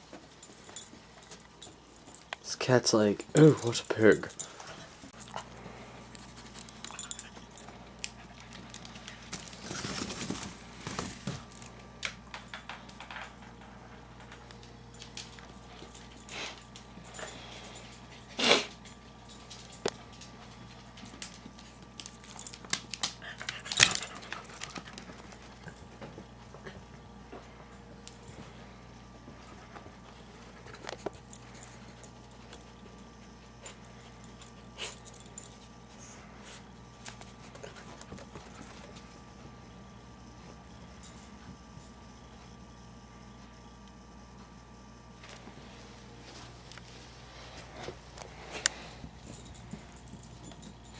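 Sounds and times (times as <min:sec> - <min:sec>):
collar tags jingling: 0:00.3 - 0:05.4, 0:23.3 - 0:25.9, 0:48.7 - 0:50.9.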